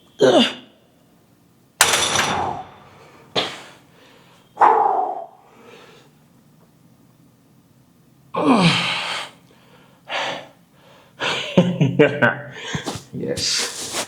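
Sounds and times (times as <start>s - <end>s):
man exhaling and grunting: 8.4s - 9.3s.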